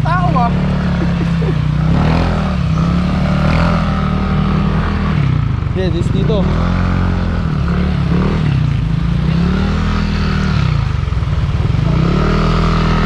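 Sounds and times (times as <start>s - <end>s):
motor scooter engine running: 0.0s - 13.0s.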